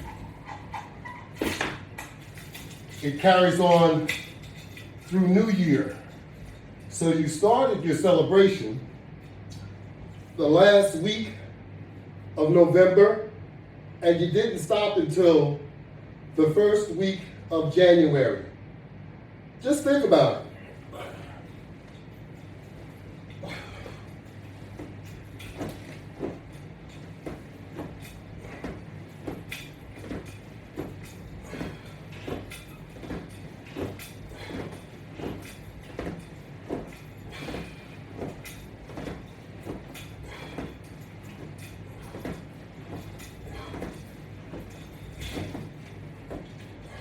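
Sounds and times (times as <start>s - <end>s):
steady low hum: 0.0s - 47.0s
resistance band creaking: 20.9s - 47.0s.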